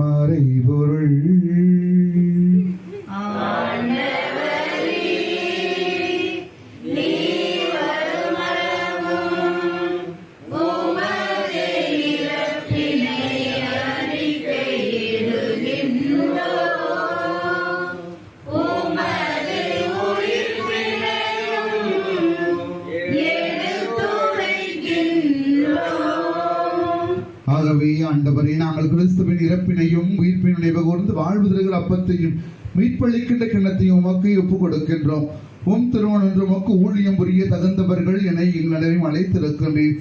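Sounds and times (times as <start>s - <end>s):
group of voices singing: 3.1s - 27.4s.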